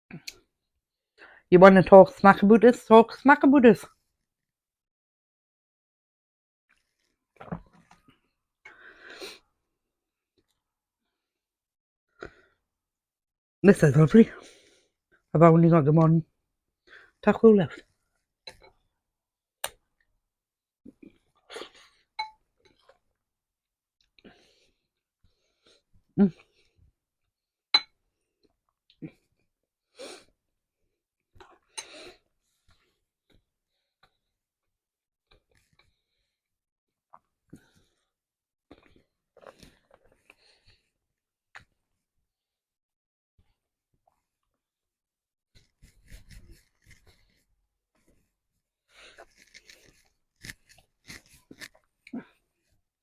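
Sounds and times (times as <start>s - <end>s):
taco shell crunching: 49.0s - 52.0s.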